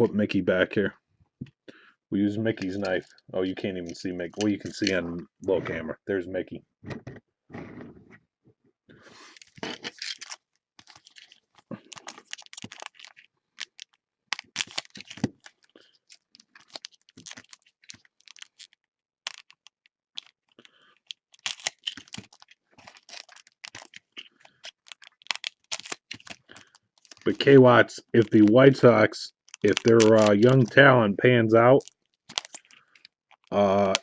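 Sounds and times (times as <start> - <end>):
foil packs tearing: 9.3 - 13.8, 14.4 - 18.6, 21.4 - 27.6, 29.5 - 30.9, 31.7 - 34.0.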